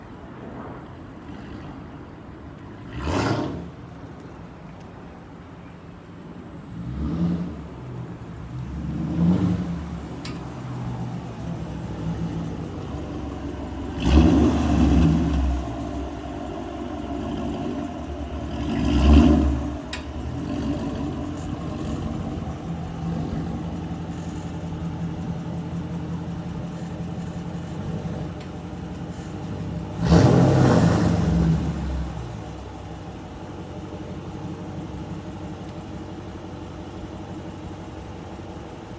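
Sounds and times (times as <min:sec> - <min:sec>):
vee eight engine idling and revving: 0:01.2 - 0:04.2, 0:05.4 - 0:38.9.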